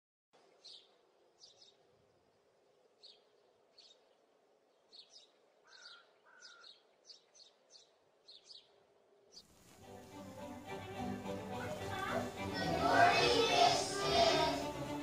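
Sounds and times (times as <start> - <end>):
high bird chirps: 4.9 - 8.7.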